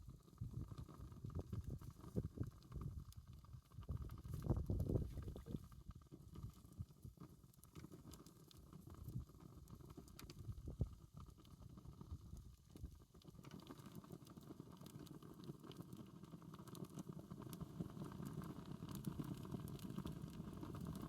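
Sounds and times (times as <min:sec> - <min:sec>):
low fire rumble: 0:00.0 - 0:13.5
campfire crackling and popping: 0:00.1 - 0:21.0.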